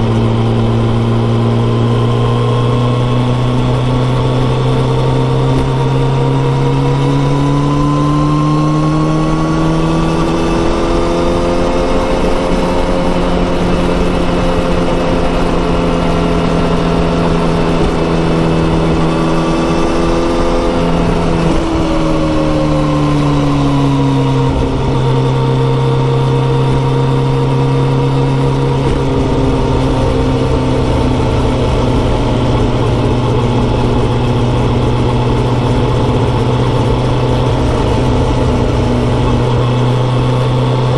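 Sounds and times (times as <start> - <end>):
motorcycle engine at road speed: 0.0 - 40.9.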